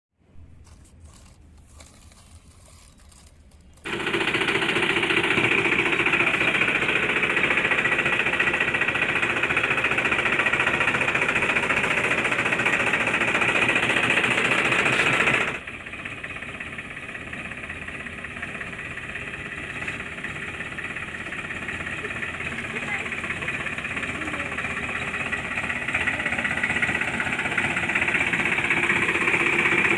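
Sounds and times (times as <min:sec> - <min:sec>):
rapid mechanical clatter: 0:01.0 - 0:29.9.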